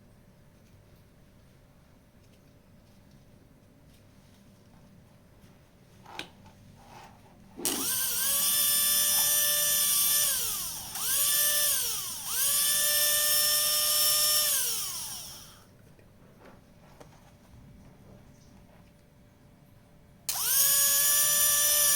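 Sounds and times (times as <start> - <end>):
high-pitched electric motor whine: 7.6 - 15.6, 20.3 - 21.9.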